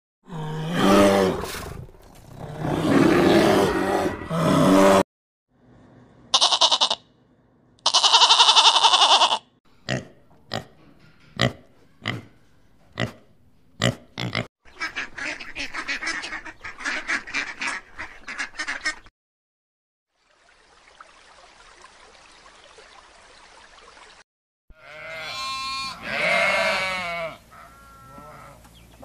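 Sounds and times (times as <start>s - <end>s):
pig grunting: 0.3s - 5.0s, 13.0s - 14.5s
goat bleating: 6.3s - 7.0s, 7.8s - 9.5s, 24.8s - 28.6s.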